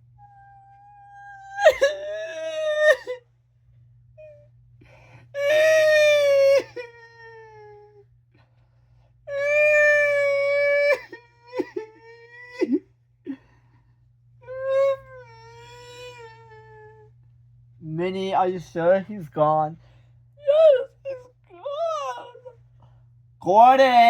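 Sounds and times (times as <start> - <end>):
person wailing: 0.4 - 3.2, 20.4 - 22.5.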